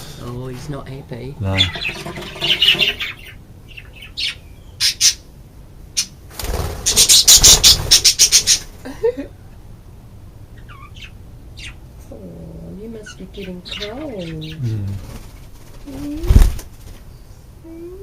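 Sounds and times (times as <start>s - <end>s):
budgerigar chick squawking: 13.0s - 14.6s.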